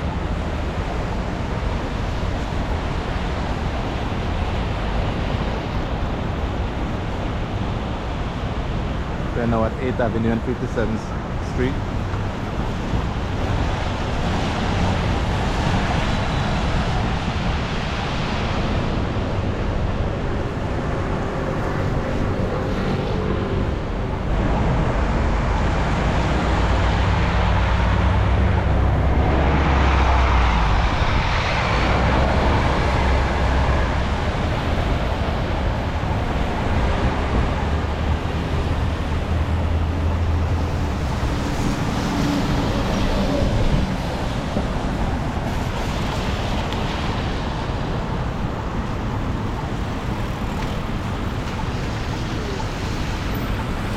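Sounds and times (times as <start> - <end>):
vehicles passing on wet street: 0.0 - 53.9.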